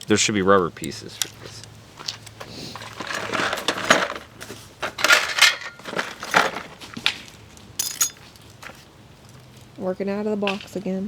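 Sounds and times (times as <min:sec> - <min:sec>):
metal tools clinking and rattling: 0:07.8 - 0:08.4.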